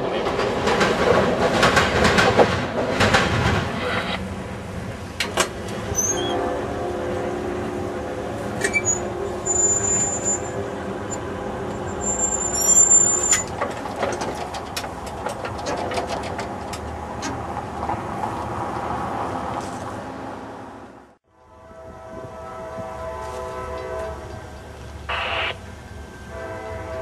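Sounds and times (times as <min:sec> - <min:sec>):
train rolling on rails: 0:00.0 - 0:27.0
high-pitched wheel squeals: 0:05.9 - 0:06.4, 0:08.6 - 0:10.6, 0:11.9 - 0:13.4
wheels clicking on rails: 0:11.6 - 0:19.7.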